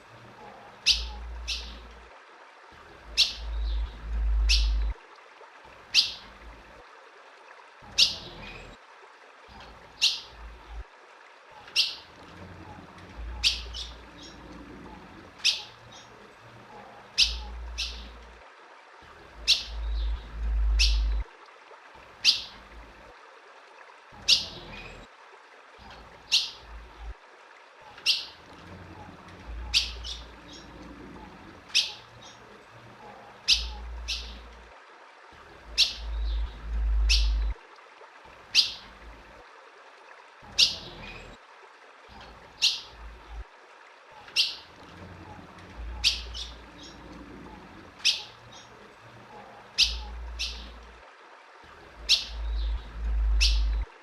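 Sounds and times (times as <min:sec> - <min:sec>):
bird chip calls: 0:00.8 - 0:01.8, 0:03.1 - 0:04.9, 0:17.2 - 0:18.2, 0:19.4 - 0:21.2, 0:31.7 - 0:32.4, 0:33.4 - 0:34.5, 0:35.7 - 0:37.6, 0:38.5 - 0:38.8, 0:44.2 - 0:44.7, 0:45.9 - 0:47.0, 0:48.0 - 0:48.7, 0:49.8 - 0:50.8, 0:52.0 - 0:53.9
low rumble: 0:03.4 - 0:05.0, 0:19.7 - 0:21.2, 0:36.0 - 0:37.6, 0:52.4 - 0:53.9.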